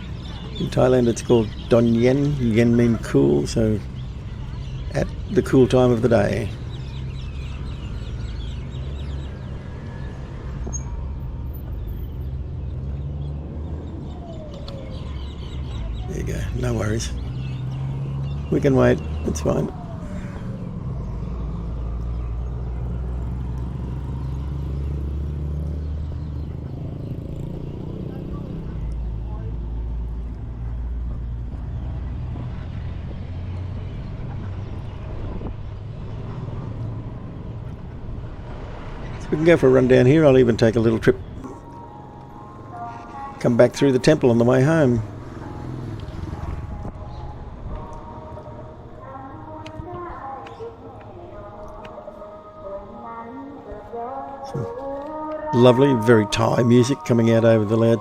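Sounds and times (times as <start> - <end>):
car and motorbike engines rumbling: 0.0 - 58.0
street noise: 0.0 - 58.0.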